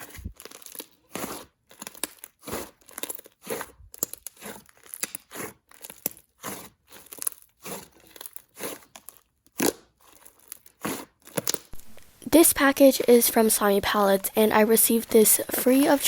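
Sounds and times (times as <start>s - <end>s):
hands squishing slime: 0.0s - 16.0s
crackly slime pops: 9.5s - 10.0s.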